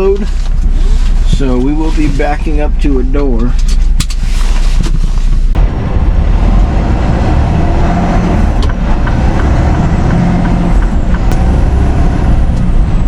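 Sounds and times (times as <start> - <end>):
road noise: 0.0 - 13.0
truck diesel engine running: 5.5 - 13.0.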